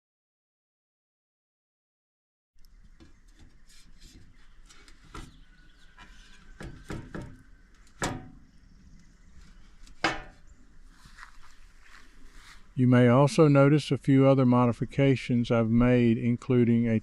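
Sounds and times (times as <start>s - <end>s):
faint background noise: 2.6s - 17.0s
sharp knocks and clicks: 6.0s - 8.5s, 9.8s - 10.4s.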